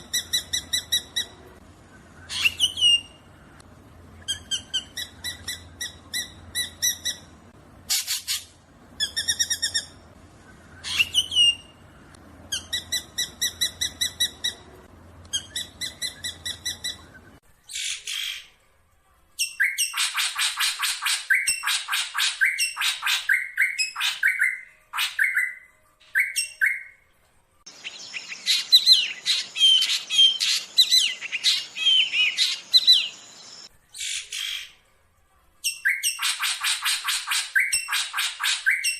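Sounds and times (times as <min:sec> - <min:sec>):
bird calling with chattering notes: 0:00.0 - 0:03.2, 0:04.2 - 0:07.3, 0:07.9 - 0:11.8, 0:12.5 - 0:18.5, 0:27.7 - 0:34.6.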